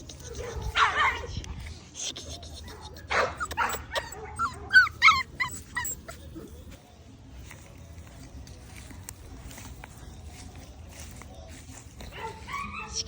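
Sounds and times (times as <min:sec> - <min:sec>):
puppy whimpering and yelping: 0:02.2 - 0:06.6.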